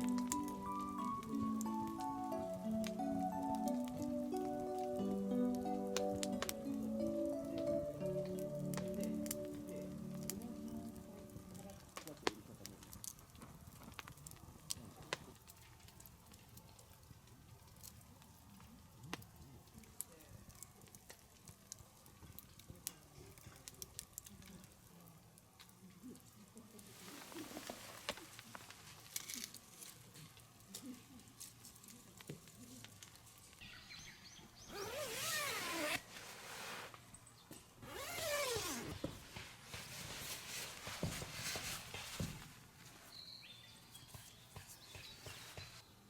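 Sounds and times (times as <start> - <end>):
campfire crackling: 0.0 - 34.1, 34.7 - 45.9
fire pops: 11.5 - 24.7.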